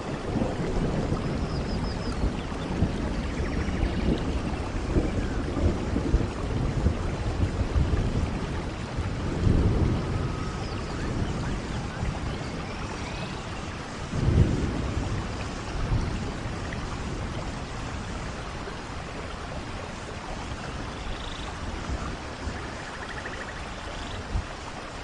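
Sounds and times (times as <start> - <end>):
thunder rumbling: 0.0 - 24.5
steady rain: 0.0 - 25.0.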